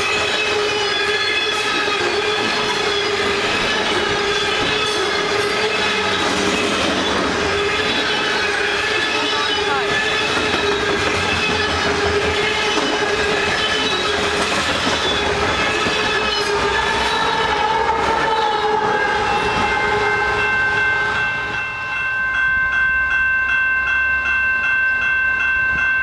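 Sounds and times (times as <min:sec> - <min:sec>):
bell ringing: 0:00.0 - 0:17.6, 0:18.3 - 0:26.0
train wheels rolling: 0:00.0 - 0:23.3
train horn: 0:15.2 - 0:22.1.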